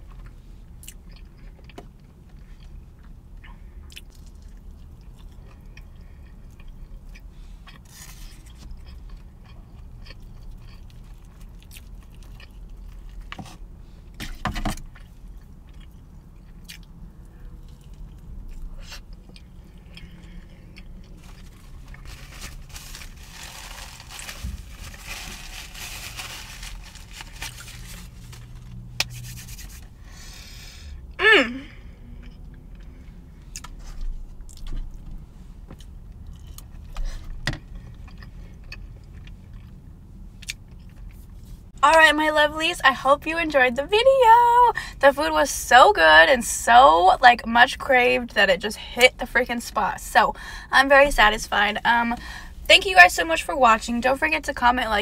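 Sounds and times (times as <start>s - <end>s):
person chewing food: 0.1s - 13.4s, 14.9s - 24.1s, 35.7s - 39.8s.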